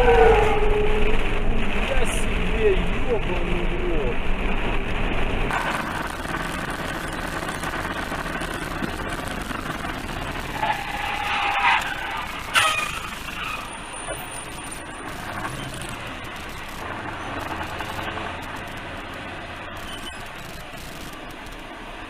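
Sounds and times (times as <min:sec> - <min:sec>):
high-pitched tyre squeal: 0:00.0 - 0:01.4, 0:10.4 - 0:15.8
engine and road noise: 0:00.0 - 0:22.0.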